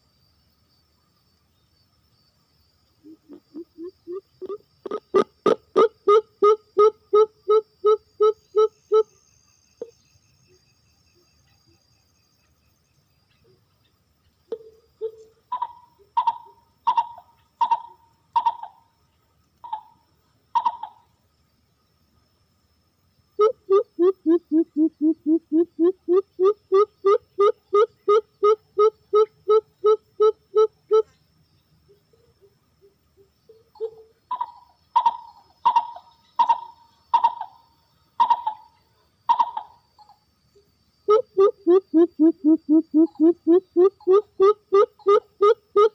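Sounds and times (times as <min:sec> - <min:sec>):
dove cooing: 0:03.0 - 0:09.0, 0:23.4 - 0:31.1, 0:41.1 - 0:45.9.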